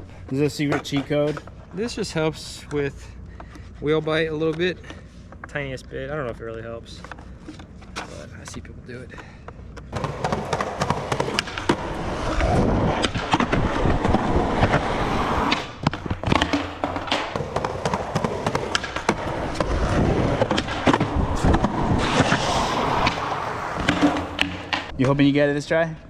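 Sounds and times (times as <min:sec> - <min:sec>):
skateboard wheels rolling on concrete: 0:00.0 - 0:25.7
skateboard clacking: 0:09.8 - 0:22.9.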